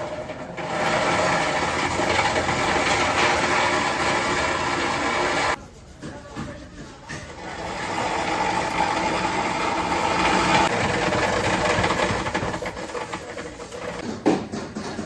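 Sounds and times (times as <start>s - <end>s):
power tool running: 0.6s - 5.6s, 7.5s - 13.1s.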